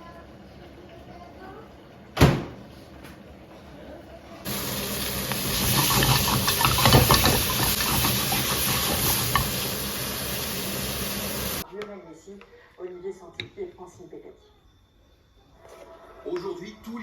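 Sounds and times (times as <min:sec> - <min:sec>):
sausages sizzling in a pan: 0:04.5 - 0:11.6.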